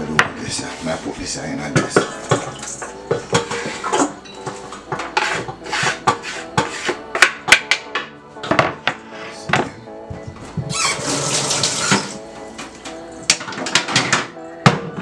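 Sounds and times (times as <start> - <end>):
metal pots and utensils clattering: 1.7 - 9.0, 10.7 - 15.0.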